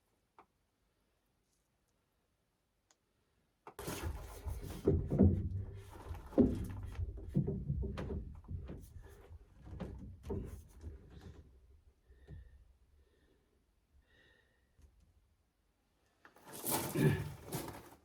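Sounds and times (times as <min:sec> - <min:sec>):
drain pipe fittings knocking: 0:04.4 - 0:11.4.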